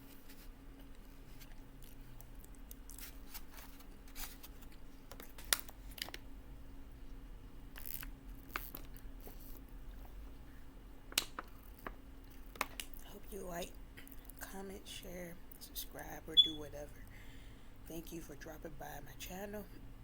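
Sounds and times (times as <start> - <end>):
chewing with crunches: 0.8 - 6.2.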